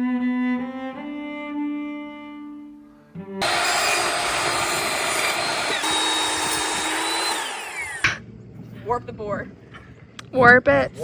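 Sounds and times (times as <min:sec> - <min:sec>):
power saw cutting wood: 0:03.4 - 0:08.2.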